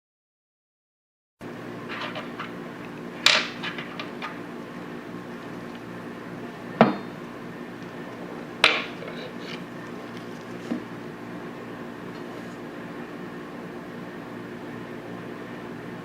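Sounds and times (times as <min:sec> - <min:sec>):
low steady hum: 0:01.4 - 0:16.0.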